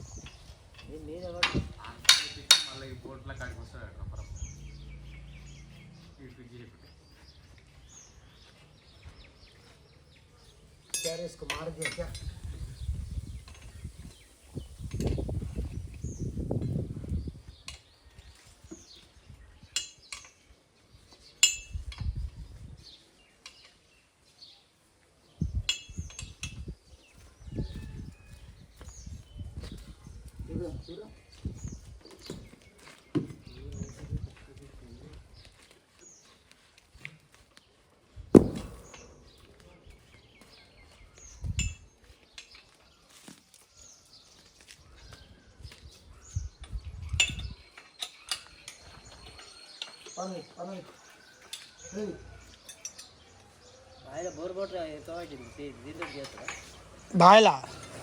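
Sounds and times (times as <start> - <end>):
small birds chirping: 0.0 - 58.0
sharp loud knock: 38.4 - 39.3
dull low thumps: 38.4 - 39.4.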